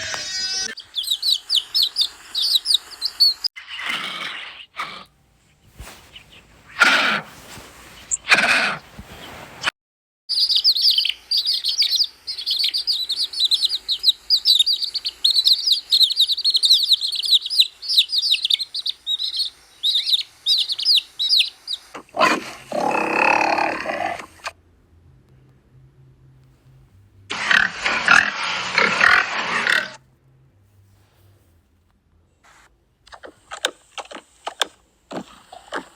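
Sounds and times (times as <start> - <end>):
loud animal calls: 0.0 - 5.1, 6.7 - 9.0, 11.3 - 24.6, 27.3 - 30.0
birds chirping: 0.0 - 9.7, 10.3 - 24.5.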